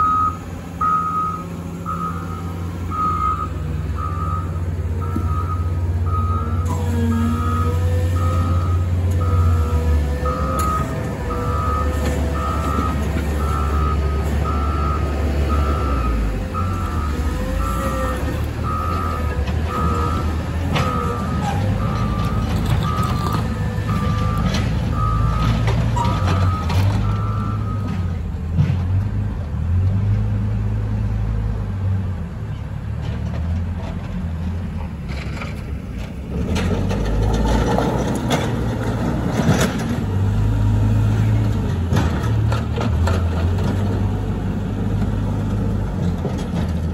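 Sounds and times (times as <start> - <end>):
reversing alarm beeping: 0.0 - 28.1
diesel engine rumbling: 0.0 - 46.9.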